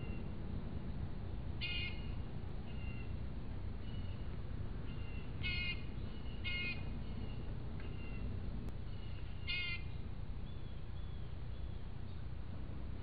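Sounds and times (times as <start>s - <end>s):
steady low rumble: 0.0s - 13.0s
faint thin bird calls: 1.6s - 3.2s, 3.8s - 11.9s
harsh bird calls: 1.6s - 3.2s, 3.8s - 11.9s.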